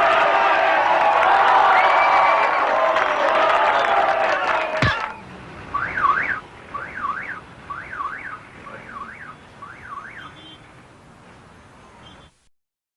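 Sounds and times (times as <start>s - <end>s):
electronic siren warble: 5.8s - 10.2s.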